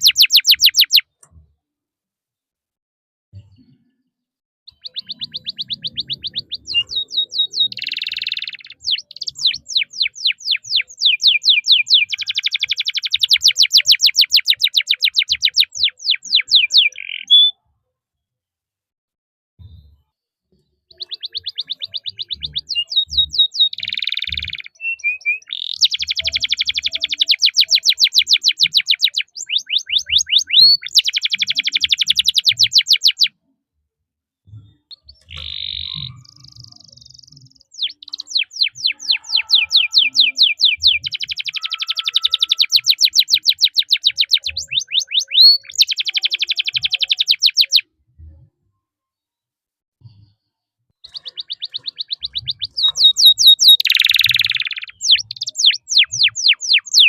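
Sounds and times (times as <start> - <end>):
canary singing: 0.0 - 1.1, 4.7 - 17.6, 20.9 - 33.4, 34.7 - 47.9, 51.0 - 57.0.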